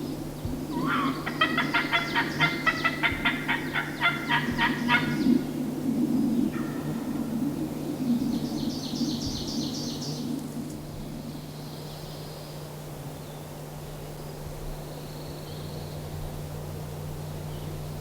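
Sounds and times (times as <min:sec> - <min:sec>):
steady low hum: 0:00.0 - 0:18.0
songbird rapid high trill: 0:00.7 - 0:05.4.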